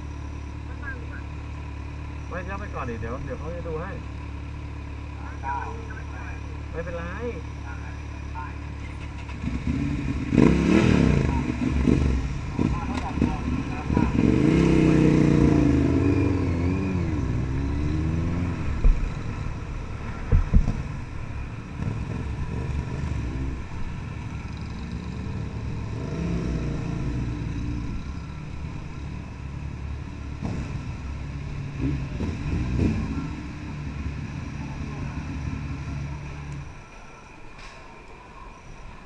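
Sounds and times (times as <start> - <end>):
motorcycle engine revving: 8.7 - 36.6.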